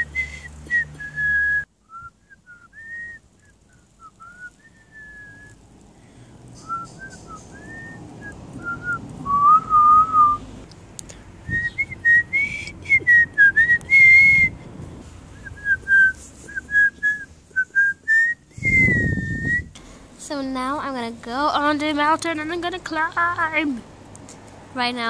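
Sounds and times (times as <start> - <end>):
person whistling a tune: 0.0 - 5.5, 6.6 - 8.0, 8.6 - 10.4, 11.5 - 14.6, 15.4 - 19.7
rustling: 10.4 - 20.1.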